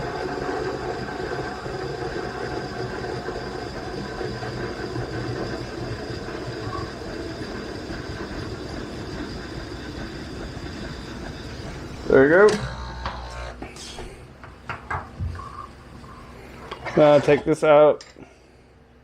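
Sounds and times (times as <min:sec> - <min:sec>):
steam wand hissing in milk: 0:00.0 - 0:12.2.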